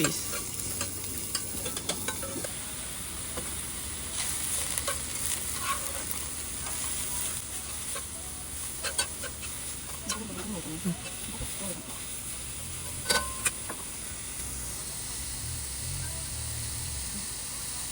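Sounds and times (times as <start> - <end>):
utensil clicking against pan: 0.0 - 2.6
food sizzling in a frying pan: 0.0 - 17.9.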